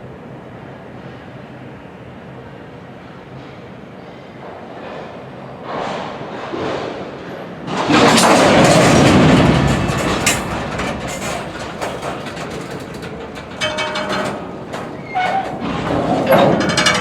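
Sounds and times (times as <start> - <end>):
freight train rumbling by: 0.0 - 17.0
train wheels clicking: 7.8 - 17.0.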